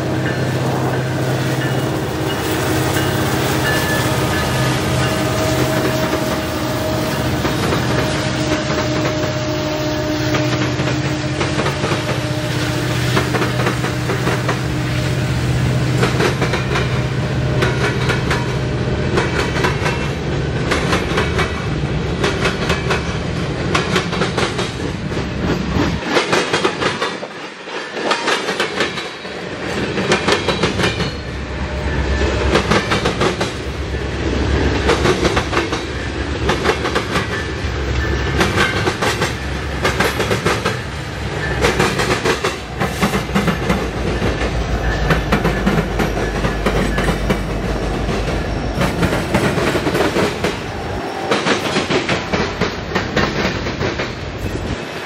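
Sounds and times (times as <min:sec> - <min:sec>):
locomotive engine hum: 0:00.0 - 0:24.3, 0:29.9 - 0:54.8
freight car wheels clickety-clack: 0:38.2 - 0:54.2.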